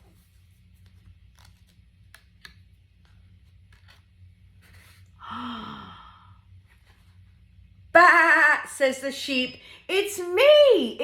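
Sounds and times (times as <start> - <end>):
picture book handling clicks: 0.8 - 4.1
breathy sigh: 5.2 - 6.4.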